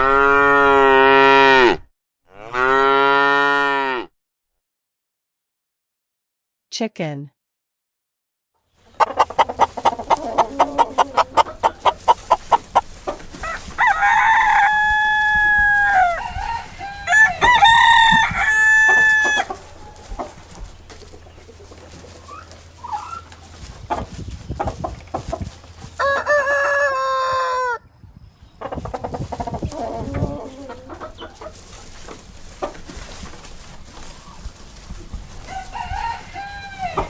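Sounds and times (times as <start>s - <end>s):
chickens clucking: 8.8s - 27.8s, 28.4s - 37.0s
rooster crowing: 13.4s - 20.4s, 26.0s - 27.8s, 35.4s - 37.0s.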